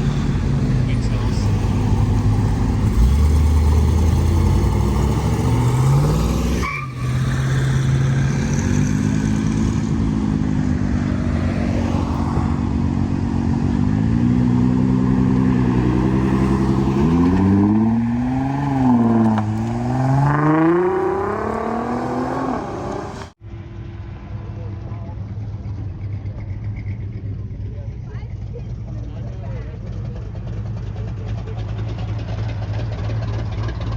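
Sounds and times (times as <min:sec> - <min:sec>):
car engine revving: 0:00.0 - 0:23.4.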